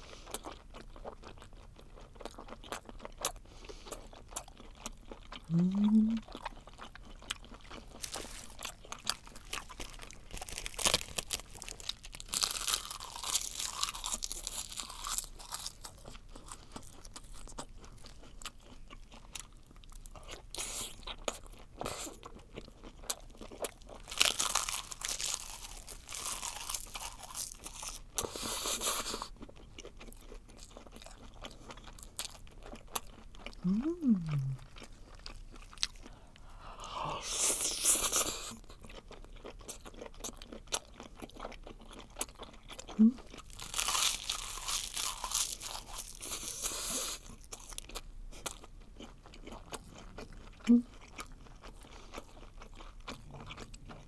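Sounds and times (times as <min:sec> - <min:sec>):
crunching dry seaweed: 0:07.7 - 0:15.9, 0:24.0 - 0:28.0, 0:43.5 - 0:46.6.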